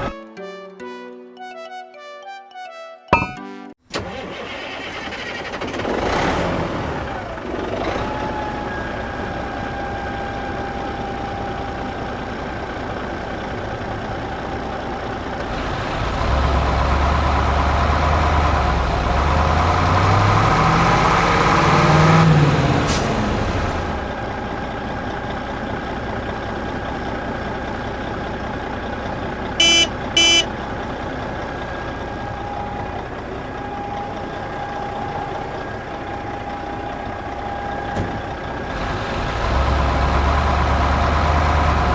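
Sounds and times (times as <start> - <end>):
short beeps: 3.2 - 3.6, 29.6 - 30.5.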